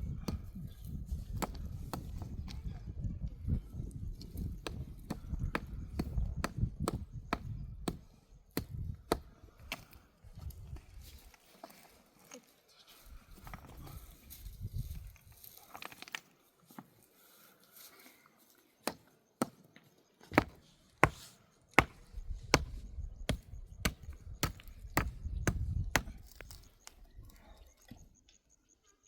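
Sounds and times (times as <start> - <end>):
sharp knocks on wood: 20.3 - 21.2, 21.8 - 26.1.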